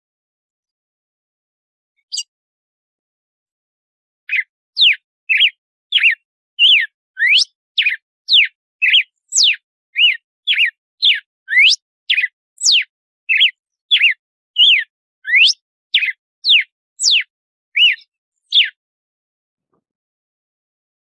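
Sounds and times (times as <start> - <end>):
bird whistling song: 2.0 - 2.3, 4.3 - 18.8.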